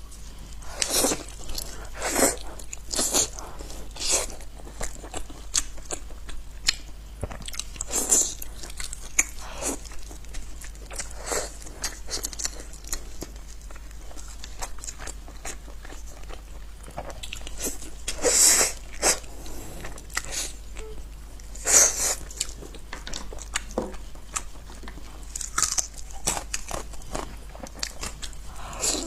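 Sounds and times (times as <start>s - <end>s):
biting and chewing: 0.6s - 20.6s, 21.4s - 29.0s.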